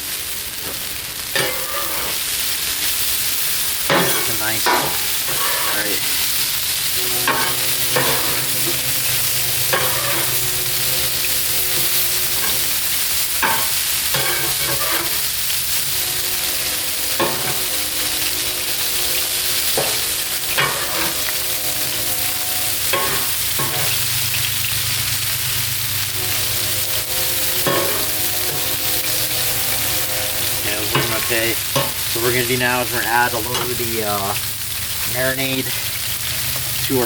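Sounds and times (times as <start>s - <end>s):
meat sizzling on a griddle: 0.0s - 37.0s.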